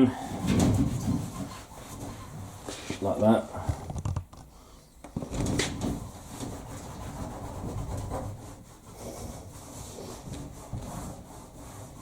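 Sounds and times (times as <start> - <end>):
damp cloth scrubbing metal casing: 5.4 - 12.0.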